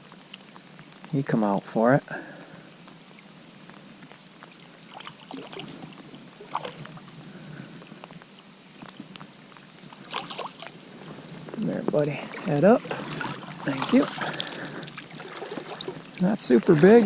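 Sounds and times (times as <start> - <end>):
creek water running: 0.0 - 17.0.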